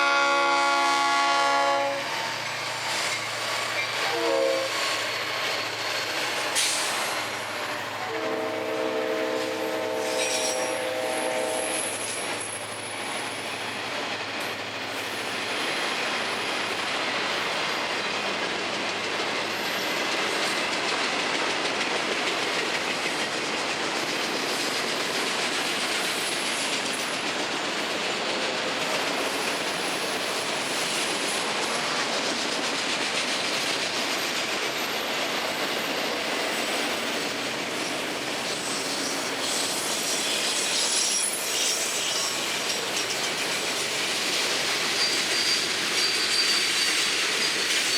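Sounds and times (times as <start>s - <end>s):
freight train rumbling: 0.0s - 47.9s
high wheel squeals: 2.0s - 7.9s, 10.0s - 13.9s, 35.7s - 43.9s, 44.6s - 47.9s
wheels clacking over rail joints: 11.8s - 47.9s.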